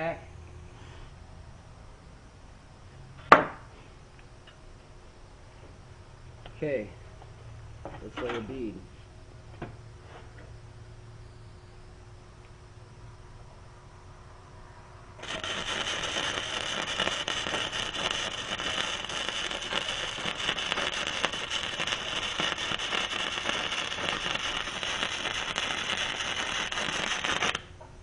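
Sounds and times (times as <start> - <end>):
welding arc crackling: 15.2 - 27.8.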